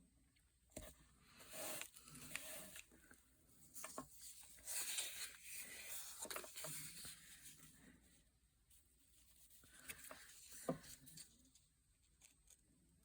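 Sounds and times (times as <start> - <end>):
paper rustling: 3.8 - 7.7.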